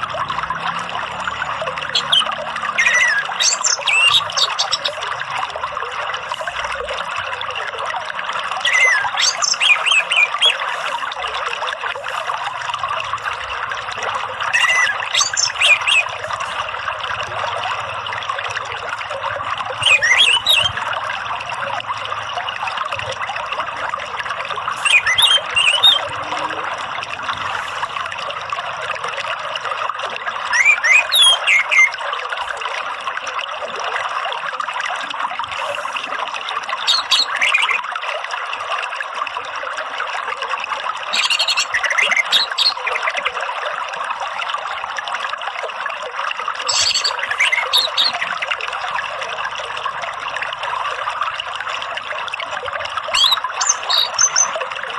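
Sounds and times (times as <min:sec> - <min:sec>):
trickling running water: 0:00.0 - 0:54.9
thrush singing whistled notes: 0:01.1 - 0:05.0, 0:08.6 - 0:10.8, 0:13.3 - 0:16.4, 0:19.8 - 0:20.9, 0:24.8 - 0:26.2, 0:30.5 - 0:32.0, 0:36.8 - 0:37.8, 0:41.1 - 0:43.0, 0:46.6 - 0:48.7, 0:53.1 - 0:54.6.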